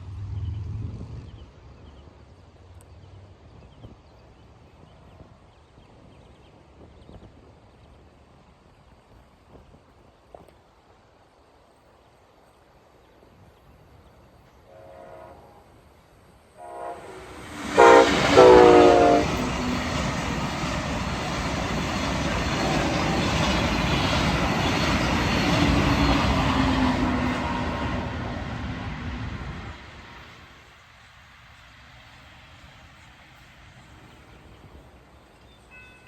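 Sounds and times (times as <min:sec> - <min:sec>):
train wheel and rail noise: 0:02.8 - 0:36.0
train horn blasts: 0:14.6 - 0:15.8, 0:16.6 - 0:20.0.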